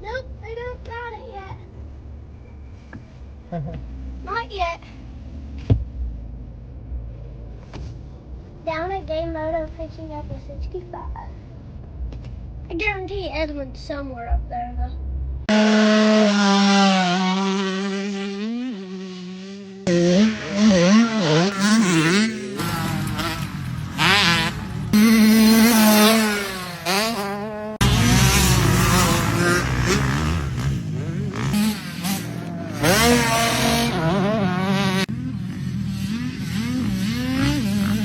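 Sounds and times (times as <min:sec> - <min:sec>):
dirt-bike engines revving: 0:15.5 - 0:38.0.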